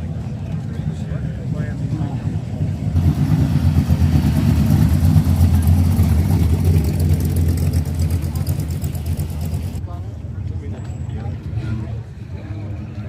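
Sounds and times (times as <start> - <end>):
car engine running: 2.5 - 9.8.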